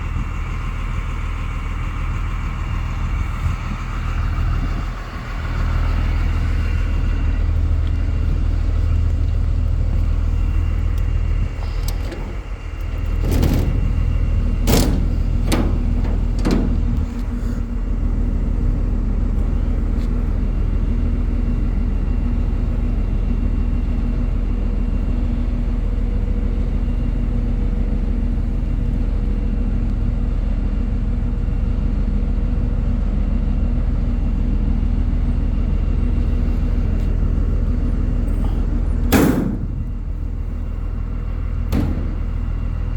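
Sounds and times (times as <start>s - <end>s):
diesel engine running: 0.0s - 42.9s
steady hum: 3.8s - 22.9s, 34.6s - 42.9s
sharp knocks: 13.0s - 17.2s, 39.1s - 40.0s, 41.7s - 42.6s.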